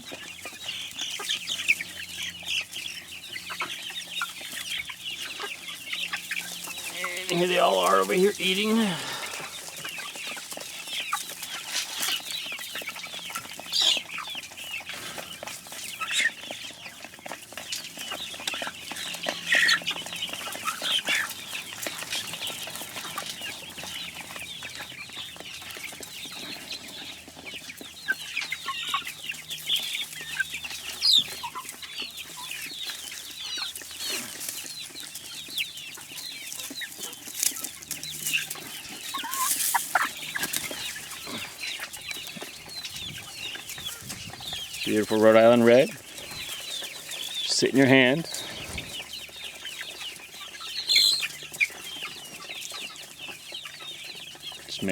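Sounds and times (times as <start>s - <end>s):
chickens clucking: 0.0s - 54.9s.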